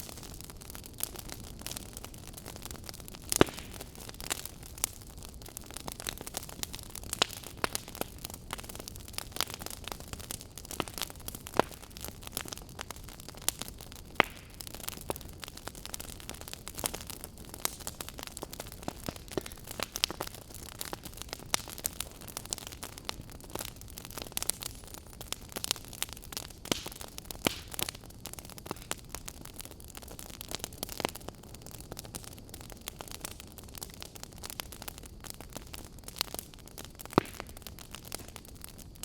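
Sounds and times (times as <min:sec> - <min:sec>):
fire crackling and popping: 0:00.0 - 0:39.0
wood fire hissing and rumbling: 0:00.0 - 0:39.0.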